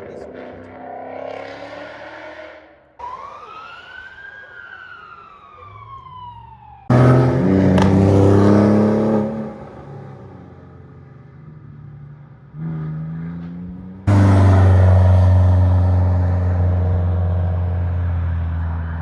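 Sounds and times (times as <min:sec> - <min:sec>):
car engine passing by: 0:06.8 - 0:10.3, 0:12.5 - 0:19.0.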